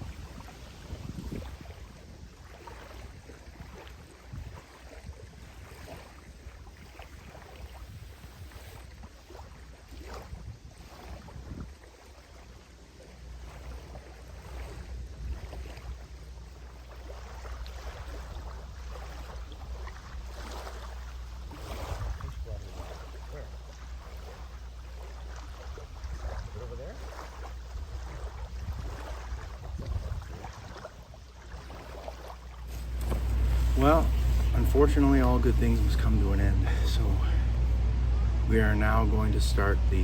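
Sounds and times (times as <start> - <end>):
wind rumbling on microphone: 0.0 - 40.0
faint rustles and clicks: 32.6 - 37.9.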